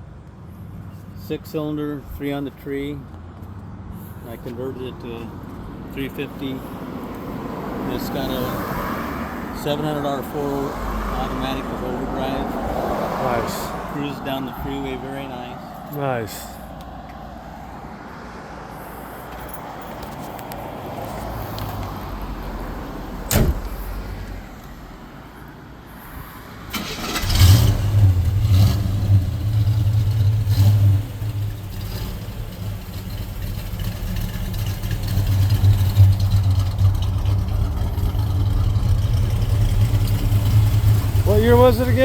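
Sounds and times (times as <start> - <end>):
engine cranking: 26.7 - 42.0.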